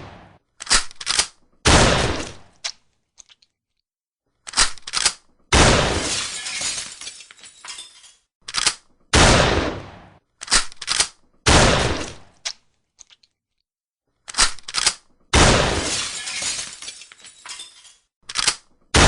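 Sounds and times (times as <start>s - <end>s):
shotgun blasts: 0.0s - 0.4s, 1.7s - 2.5s, 5.5s - 6.1s, 9.1s - 10.2s, 11.5s - 12.3s, 15.3s - 16.0s.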